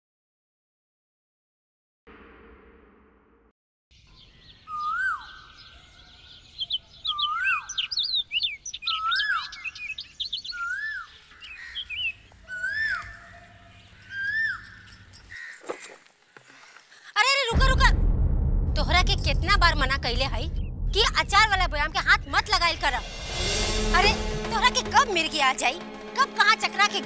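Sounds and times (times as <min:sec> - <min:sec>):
birds chirping: 0:04.0 - 0:17.0
bird whistled call: 0:04.6 - 0:13.3, 0:14.0 - 0:14.8.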